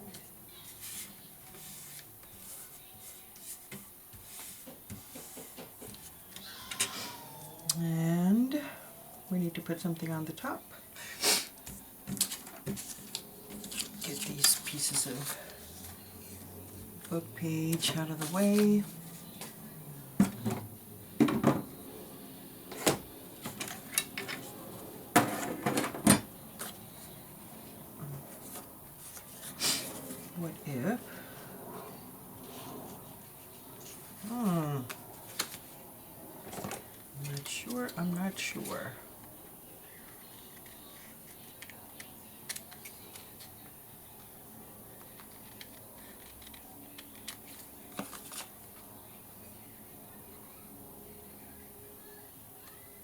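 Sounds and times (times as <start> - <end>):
paper rustling: 11.7 - 16.4, 45.1 - 48.6.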